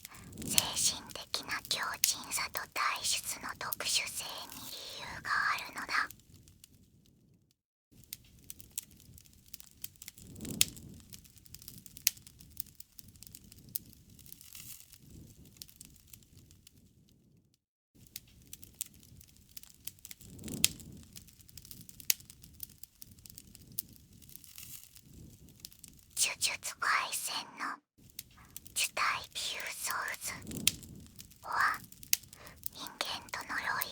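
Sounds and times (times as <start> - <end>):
wood fire crackling and popping: 0.2 - 0.5, 8.1 - 16.3, 18.1 - 26.1, 30.4 - 33.4.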